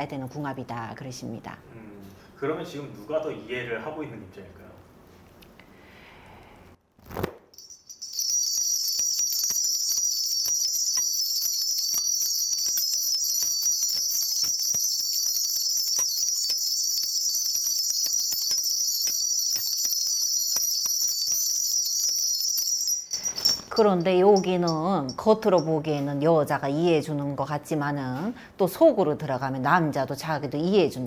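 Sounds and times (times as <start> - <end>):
brass bells jingling: 7.6 - 26.0.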